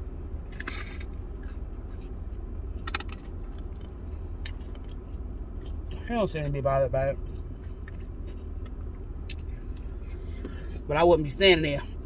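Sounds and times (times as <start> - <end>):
steady low hum: 0.0 - 12.0
chewing sandwich: 0.4 - 6.0, 7.2 - 10.4.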